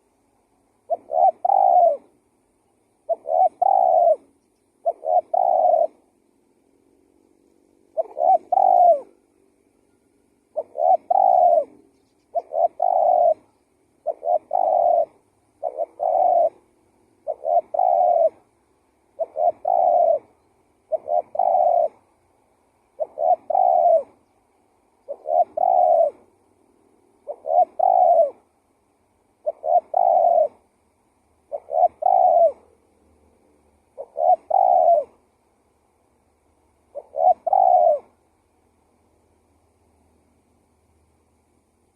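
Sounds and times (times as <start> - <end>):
dove cooing: 0.7 - 2.2, 3.0 - 6.2, 7.7 - 9.2, 10.4 - 22.2, 22.8 - 24.3, 25.0 - 28.5, 29.3 - 30.8, 31.4 - 32.9, 33.8 - 35.4, 36.8 - 38.3.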